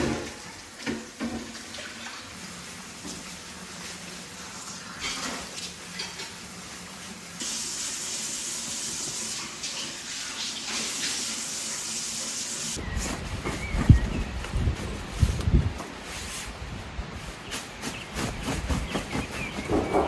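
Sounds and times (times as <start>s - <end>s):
water running from a tap: 0.0s - 12.8s.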